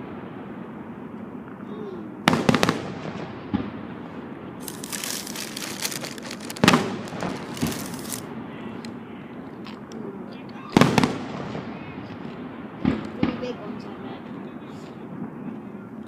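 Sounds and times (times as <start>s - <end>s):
fireworks banging: 2.2s - 9.0s
fireworks crackling: 2.3s - 9.0s
small fireworks pops: 4.6s - 10.0s, 10.7s - 13.6s.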